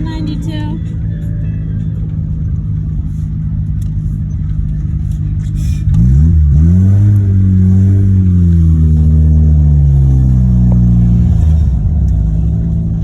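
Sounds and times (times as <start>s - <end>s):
rotary engine revving: 5.0s - 13.0s.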